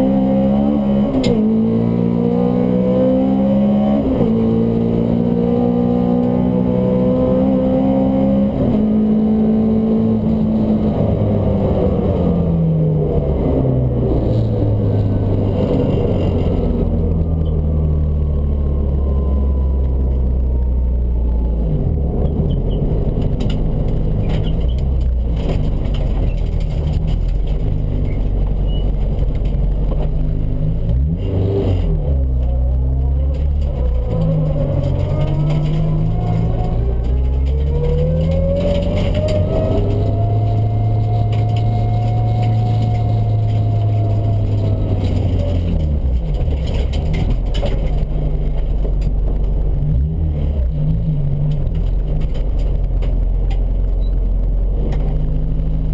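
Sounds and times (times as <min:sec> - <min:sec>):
car engine revving hard: 0:33.8 - 0:45.8.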